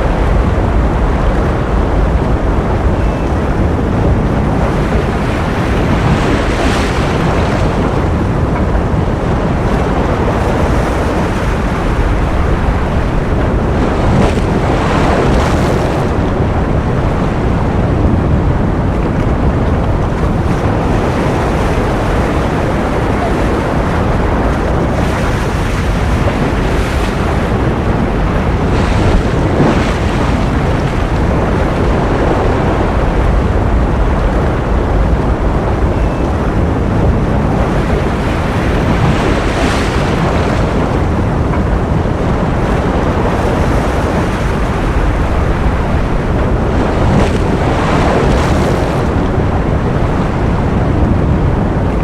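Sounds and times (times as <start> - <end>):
ocean waves washing: 0.0 - 52.0.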